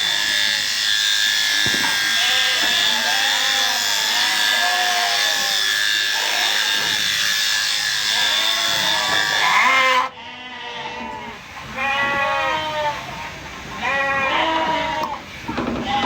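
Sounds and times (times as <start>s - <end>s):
electric shearing clippers whining: 0.0s - 10.1s
sheep bleating: 1.5s - 6.7s, 8.1s - 13.1s, 13.8s - 15.2s.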